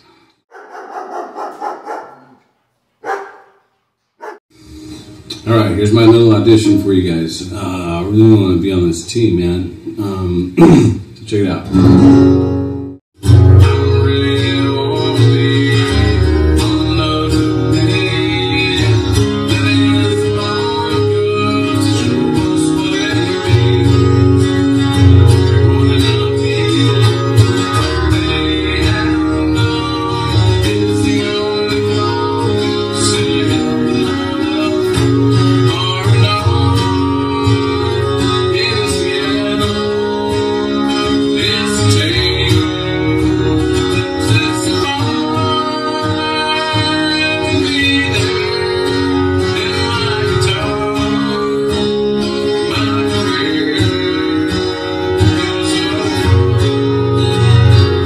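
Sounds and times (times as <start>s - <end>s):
guitar-led music: 4.2s - 58.0s
steady bass notes: 11.7s - 20.2s, 21.4s - 38.9s
person singing: 13.3s - 58.0s.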